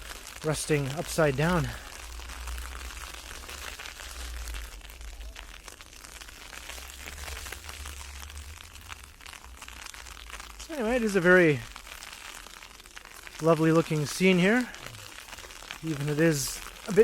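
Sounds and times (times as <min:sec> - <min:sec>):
ice pellets hitting microphone: 0:00.0 - 0:17.0.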